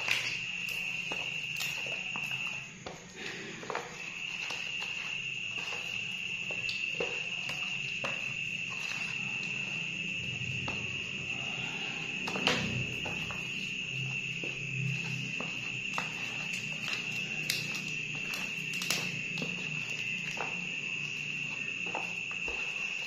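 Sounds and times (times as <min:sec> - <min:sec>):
cricket trilling: 0:00.0 - 0:23.0.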